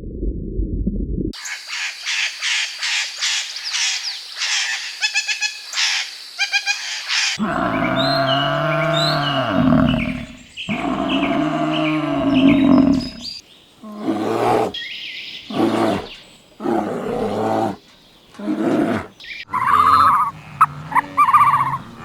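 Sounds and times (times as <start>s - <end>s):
farm animals calling: 4.4s - 22.0s.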